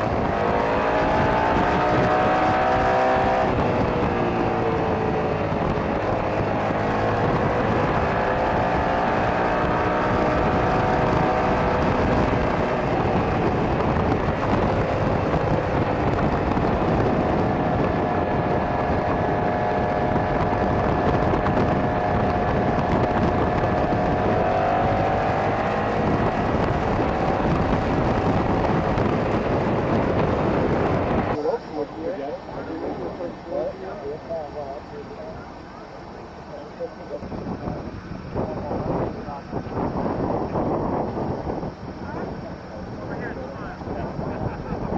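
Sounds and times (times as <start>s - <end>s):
motorcycle engine running: 0.0s - 31.6s
wind rushing over microphone: 0.0s - 44.9s.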